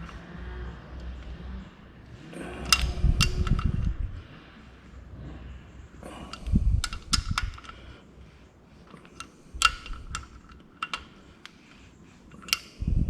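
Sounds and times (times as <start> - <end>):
tools clinking on metal: 2.4 - 4.1, 6.1 - 7.8, 8.8 - 11.2, 12.3 - 12.8.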